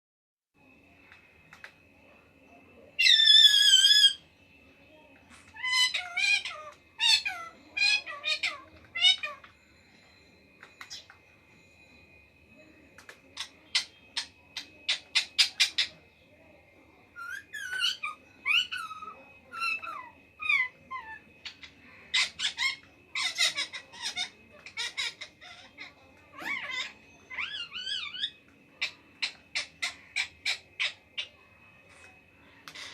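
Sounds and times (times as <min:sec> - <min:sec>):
parakeet long wavering call: 0:00.6 - 0:32.9
parrot squawking: 0:03.0 - 0:04.2, 0:05.5 - 0:09.6, 0:13.3 - 0:16.1, 0:17.2 - 0:32.9.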